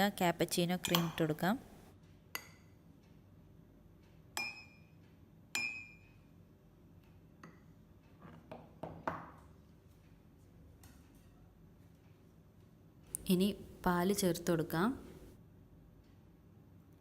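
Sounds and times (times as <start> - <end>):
spoon clinking against mug: 0.8 - 1.3.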